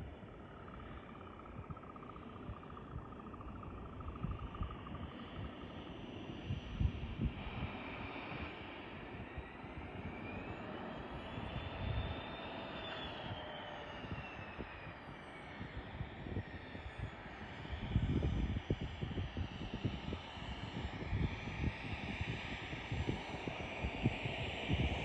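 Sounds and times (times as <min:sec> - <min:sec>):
jet engine whine flying past: 0:00.0 - 0:25.0
wind buffeting microphone: 0:01.4 - 0:12.5, 0:14.0 - 0:25.0.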